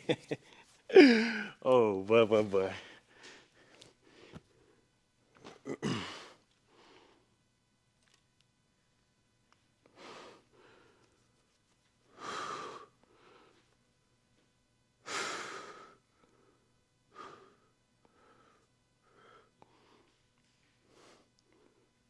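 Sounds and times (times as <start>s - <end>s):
man breathing out heavily: 0.9s - 1.6s, 5.8s - 7.2s, 12.1s - 13.7s.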